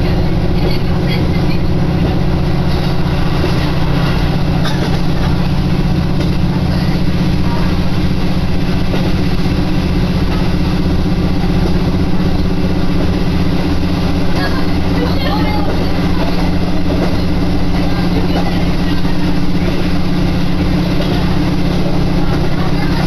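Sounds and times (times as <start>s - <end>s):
diesel engine drone: 0.0s - 23.0s
train running noise: 0.0s - 23.0s.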